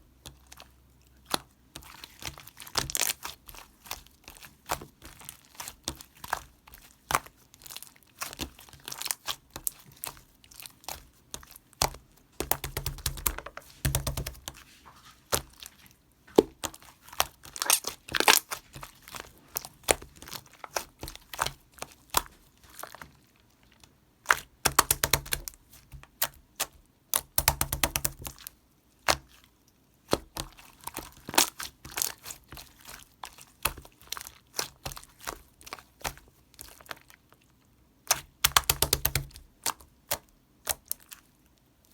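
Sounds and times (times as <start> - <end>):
slime crackling and popping: 16.4 - 23.0, 30.1 - 37.1, 38.1 - 41.2.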